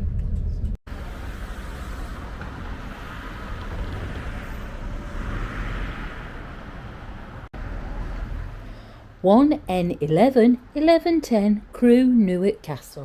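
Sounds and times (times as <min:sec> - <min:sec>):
diesel train rumbling: 0:00.4 - 0:08.6.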